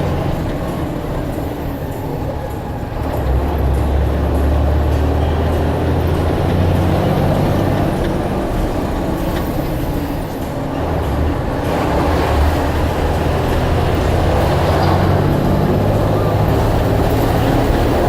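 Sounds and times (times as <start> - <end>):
bus engine rumbling: 0.0 - 18.0
road noise: 0.0 - 18.0.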